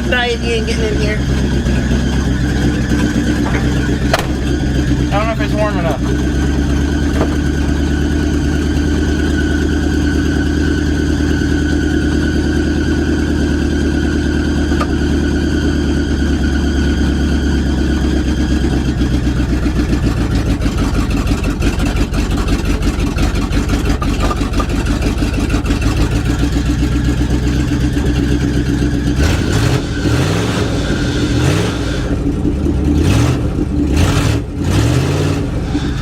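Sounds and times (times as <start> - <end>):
engine revving in blips: 0.0 - 36.0
pickup engine idling: 0.0 - 36.0
high-pitched squeal: 0.3 - 14.3, 25.6 - 32.7, 35.5 - 36.0.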